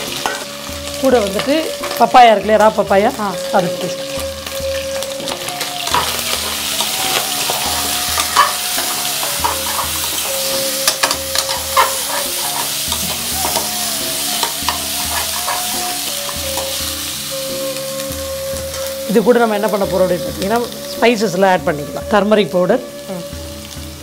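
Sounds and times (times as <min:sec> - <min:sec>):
metal spatula scraping a pan: 0:00.0 - 0:02.0, 0:04.0 - 0:17.2
meat sizzling in hot oil: 0:00.0 - 0:24.0.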